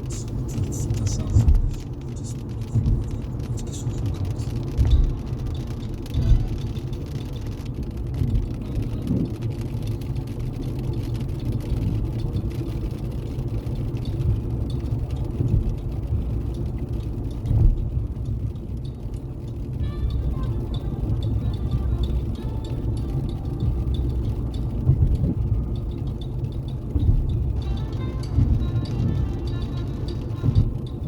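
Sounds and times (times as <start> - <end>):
car road noise rumble: 0.0 - 31.0
thumps in car: 0.6 - 2.1, 4.8 - 5.4.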